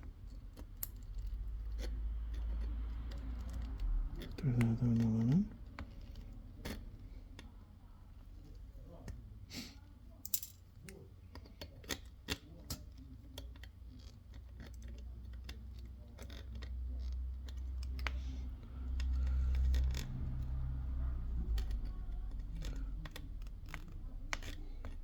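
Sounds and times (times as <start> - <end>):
tools clicking and tapping: 10.2 - 13.7.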